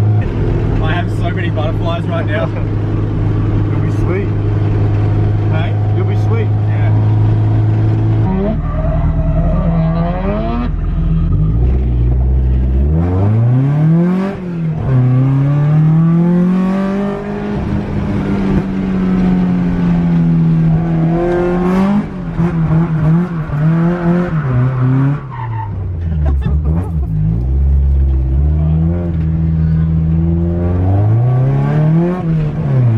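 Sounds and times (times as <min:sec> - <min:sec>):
car engine revving hard: 0:09.2 - 0:25.3, 0:26.5 - 0:32.9.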